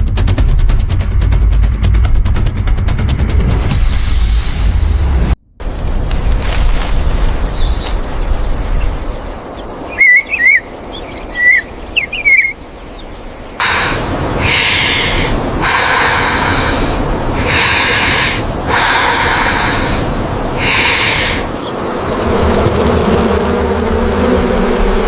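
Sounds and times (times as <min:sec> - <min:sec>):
whistled bird chirps: 0:09.9 - 0:12.6
bee swarm buzzing: 0:13.6 - 0:25.0.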